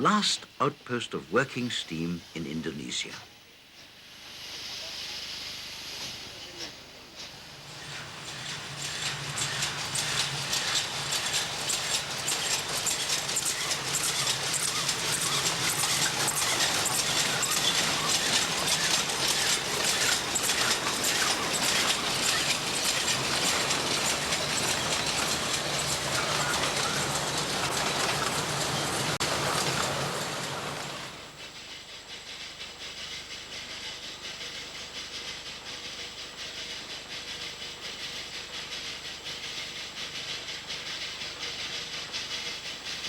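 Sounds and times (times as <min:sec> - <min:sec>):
train wheels clattering on track: 0:05.8 - 0:43.0.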